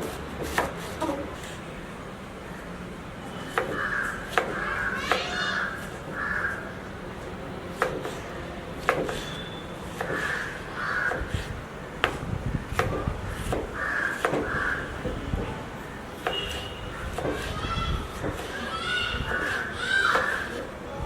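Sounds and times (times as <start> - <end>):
sharp knocks: 3.6 - 5.3, 7.8 - 8.2, 8.8 - 9.4, 11.0 - 15.5, 16.2 - 17.5, 18.2 - 18.5
short harsh bird calls: 9.2 - 11.5.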